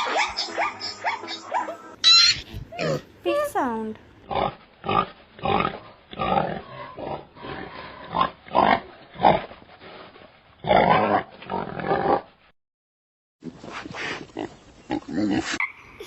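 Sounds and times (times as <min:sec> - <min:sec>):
pig grunting and oinking: 0:02.1 - 0:03.1, 0:04.3 - 0:09.5, 0:10.6 - 0:12.3, 0:14.0 - 0:16.0.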